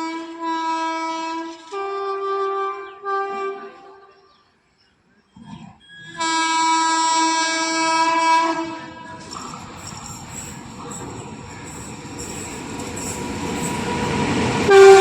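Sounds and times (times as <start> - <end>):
train horn blasts: 0.0 - 4.2, 6.1 - 9.3, 14.7 - 15.0.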